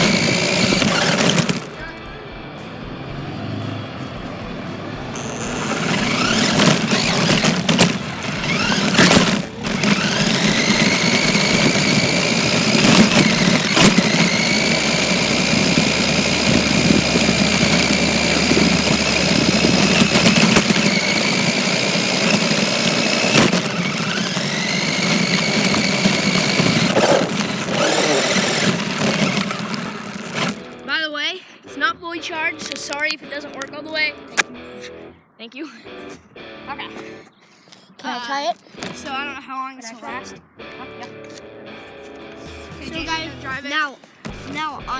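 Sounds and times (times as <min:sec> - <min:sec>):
electric motor whining: 0:00.0 - 0:02.0, 0:04.9 - 0:30.8.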